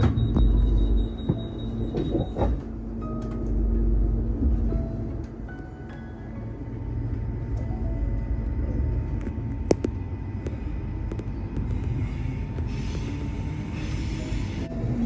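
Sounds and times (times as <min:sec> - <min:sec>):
train rumbling: 0:00.0 - 0:15.0
hiss: 0:12.2 - 0:14.7.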